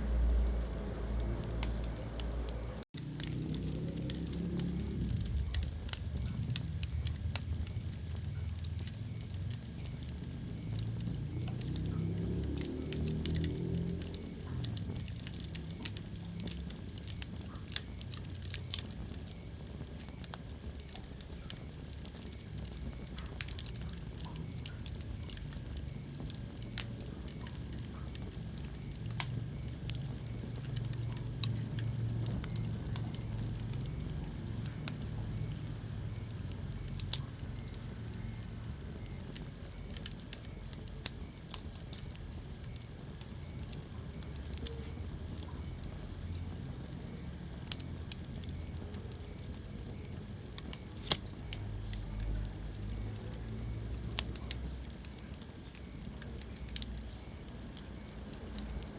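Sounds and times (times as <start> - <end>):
low rumble: 0.0 - 16.7
fire popping: 0.0 - 58.9
wood fire crackling: 0.0 - 58.9.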